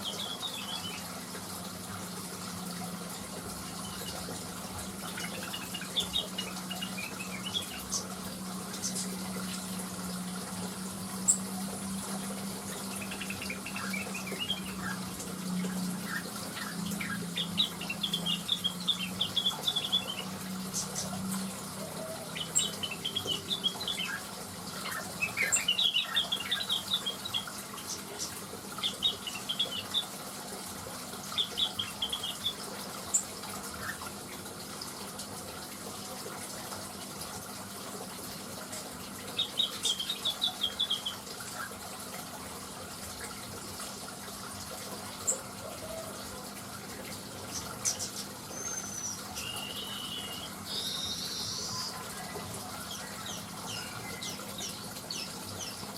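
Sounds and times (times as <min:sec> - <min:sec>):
bird chirping phrases: 0:00.0 - 0:01.1, 0:05.0 - 0:09.2, 0:12.7 - 0:30.2, 0:31.3 - 0:33.2, 0:39.3 - 0:41.7, 0:47.5 - 0:55.9.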